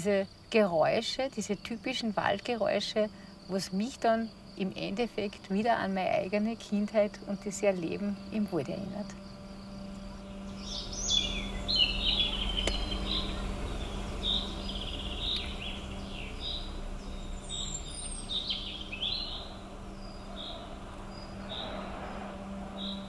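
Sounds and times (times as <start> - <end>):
faint low hum: 0.0 - 23.0
birds chirping and whistling: 9.7 - 23.0.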